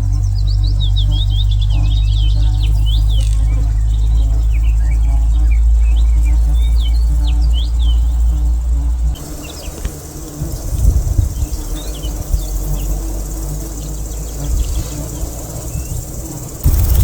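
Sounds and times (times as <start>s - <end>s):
small birds chirping: 0.0s - 8.6s, 9.2s - 17.0s
insects humming: 0.0s - 17.0s
uneven low rumble: 16.6s - 17.0s.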